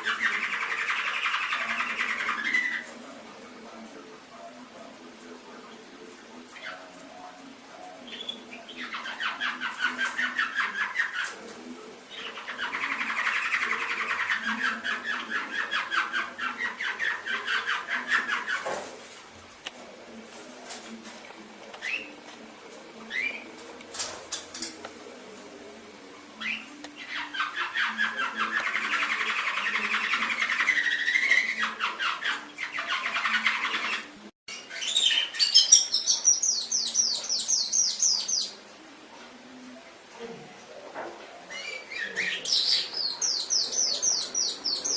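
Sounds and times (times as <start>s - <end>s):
canary singing fast trills: 0.0s - 2.9s, 26.4s - 38.6s, 41.5s - 44.9s.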